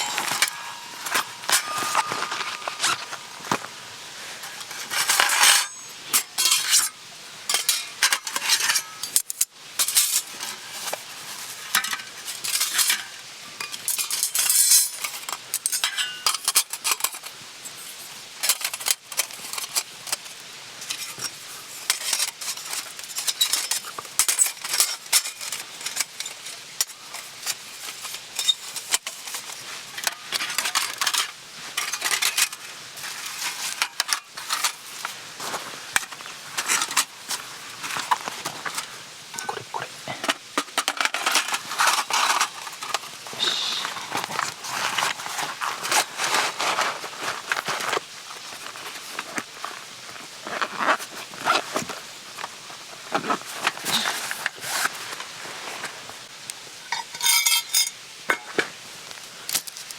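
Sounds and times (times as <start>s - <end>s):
metal cookware clinking and scraping: 0.0s - 3.6s, 4.3s - 17.3s, 20.8s - 34.9s, 37.8s - 43.6s, 56.8s - 58.6s.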